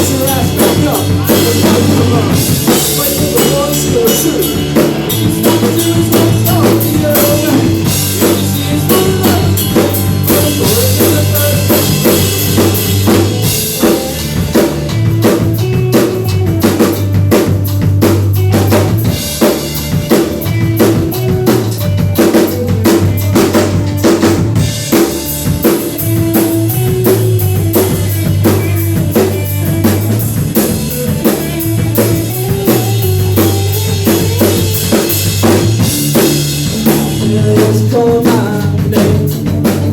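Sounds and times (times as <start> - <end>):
live band music: 0.0 - 39.9.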